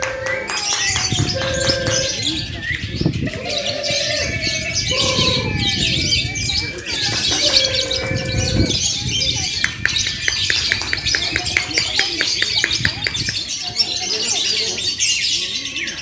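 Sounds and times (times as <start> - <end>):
lovebirds chattering and trilling: 0.0 - 16.0.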